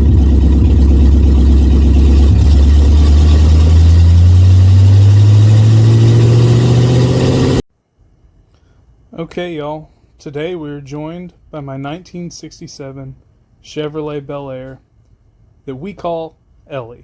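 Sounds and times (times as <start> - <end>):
car engine running loudly: 0.0 - 7.6.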